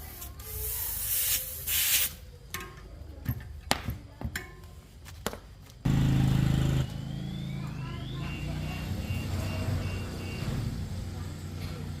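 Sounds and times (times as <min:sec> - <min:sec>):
spray hiss: 0:00.1 - 0:02.2
loud low hum: 0:05.9 - 0:09.5.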